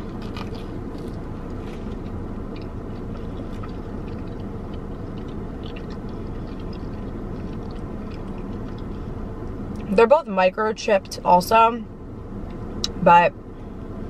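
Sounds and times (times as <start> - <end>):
person chewing crispy toast: 0.0 - 9.9.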